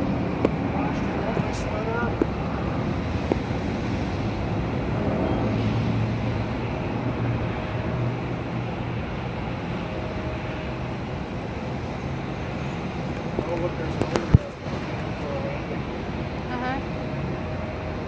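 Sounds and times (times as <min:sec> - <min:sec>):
jet airliner rumble: 0:00.0 - 0:18.0.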